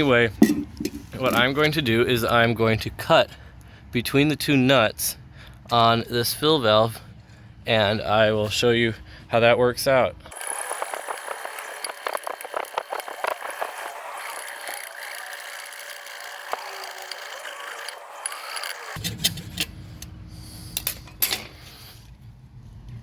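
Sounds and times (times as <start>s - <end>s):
cutting through plastic: 10.4s - 19.0s.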